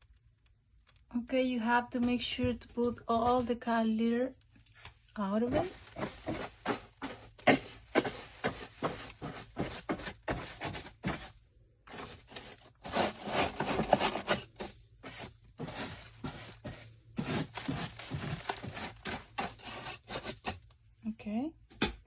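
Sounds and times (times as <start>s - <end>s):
cat litter scraping and pattering: 5.4s - 20.7s.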